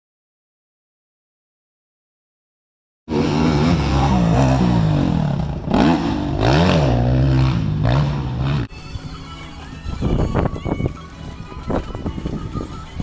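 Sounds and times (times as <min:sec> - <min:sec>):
motorcycle engines revving: 0:03.1 - 0:13.0.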